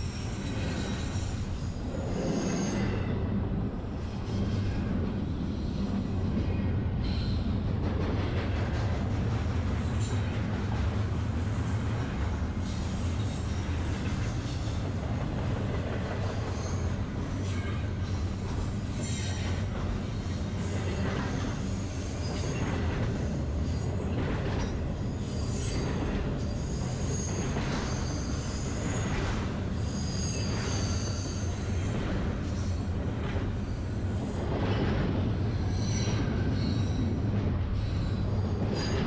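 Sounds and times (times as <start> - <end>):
freight train rumbling: 0.0 - 39.0
high-pitched wheel squeals: 29.8 - 31.8.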